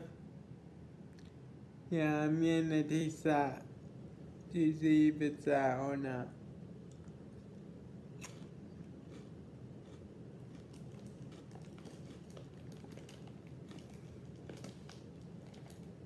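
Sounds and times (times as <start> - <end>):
snack crunching: 6.8 - 16.0.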